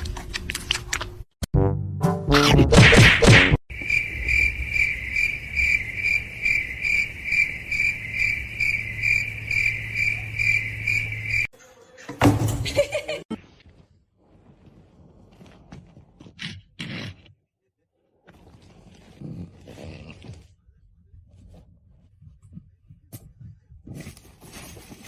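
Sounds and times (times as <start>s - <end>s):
cricket chirping: 3.7s - 11.5s.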